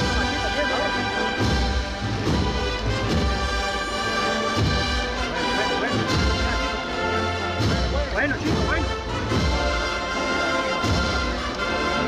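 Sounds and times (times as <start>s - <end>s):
brass band playing a march: 0.0s - 12.0s
deep drum beats: 0.0s - 12.0s.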